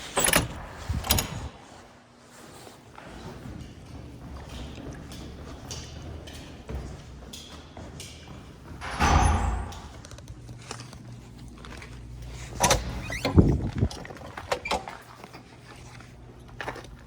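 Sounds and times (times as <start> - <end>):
heavy door thuds: 8.8 - 10.0
door latch click: 8.8 - 10.1.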